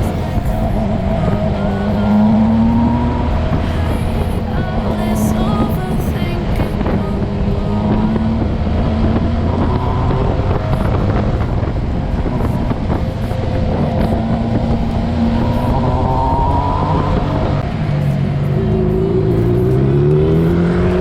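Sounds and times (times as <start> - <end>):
motorcycle engine running: 0.0 - 21.0
wind rushing over microphone: 0.0 - 21.0.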